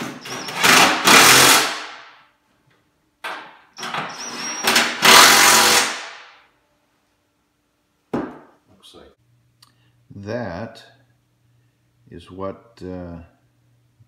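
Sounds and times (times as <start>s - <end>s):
power drill driving bolts: 0.0s - 1.9s, 3.8s - 6.2s.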